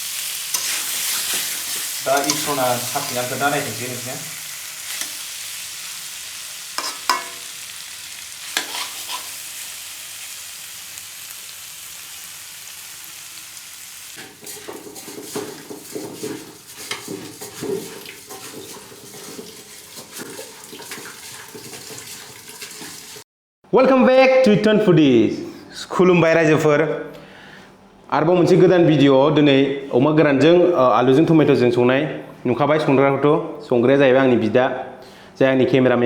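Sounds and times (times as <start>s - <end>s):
curry sizzling in a pan: 0.0s - 23.2s
clattering and stirring: 0.5s - 3.6s, 6.8s - 7.5s, 14.2s - 23.2s
utensil clinking against pan: 6.8s - 7.5s.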